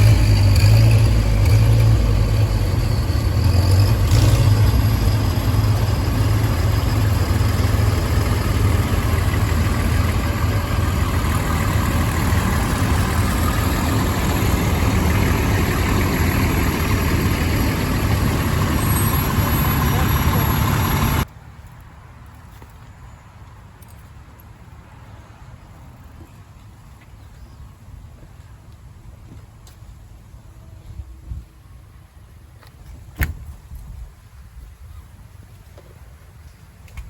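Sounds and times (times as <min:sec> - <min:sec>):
tractor engines idling: 0:00.0 - 0:37.0
voices: 0:04.8 - 0:21.3.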